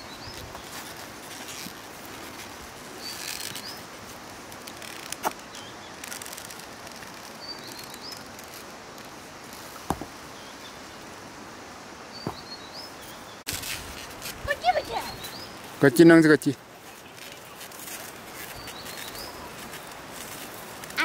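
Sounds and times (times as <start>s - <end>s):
steady outdoor hiss: 0.0s - 21.0s
small birds chirping: 2.9s - 4.0s, 4.8s - 9.1s, 12.1s - 13.5s, 14.4s - 17.6s, 18.2s - 20.2s.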